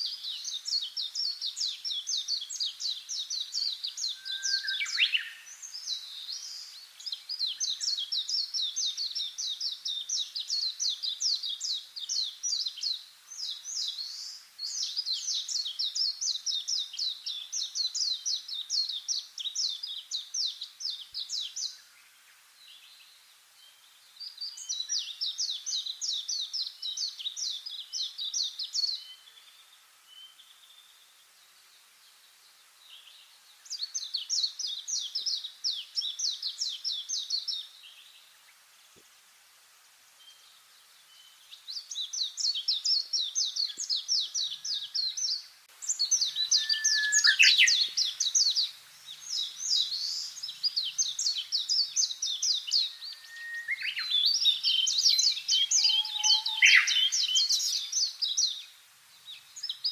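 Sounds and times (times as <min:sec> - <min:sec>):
high chirping calls: 0:41.6 - 0:59.9.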